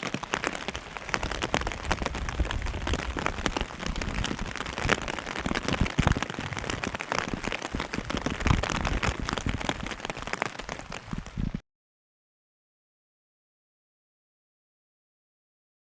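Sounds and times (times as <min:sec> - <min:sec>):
rain drops pattering: 0:00.0 - 0:11.6.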